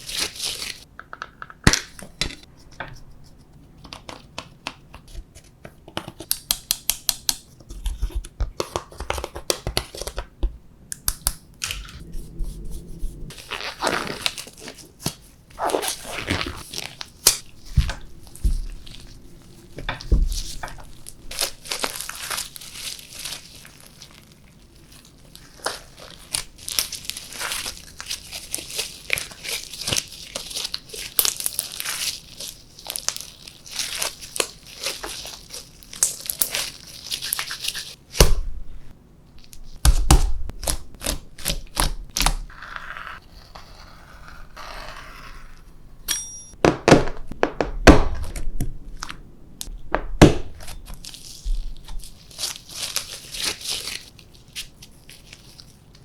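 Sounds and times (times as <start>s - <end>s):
slime thuds and slaps: 49.9s - 50.7s.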